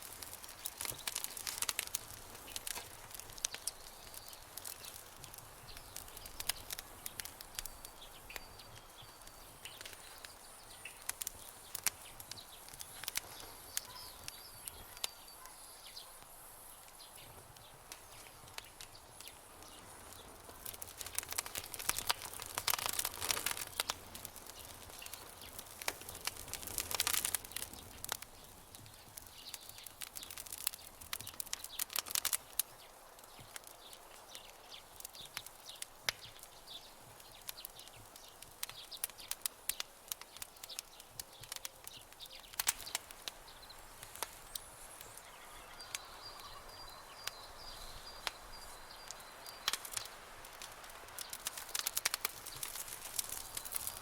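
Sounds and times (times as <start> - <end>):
campfire crackling and popping: 0.0 - 54.0
faint high chirping: 12.4 - 16.2, 43.6 - 50.0.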